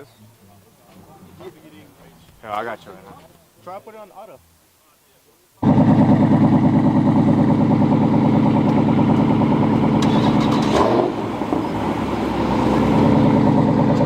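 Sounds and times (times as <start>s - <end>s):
car engine idling: 5.6s - 14.0s.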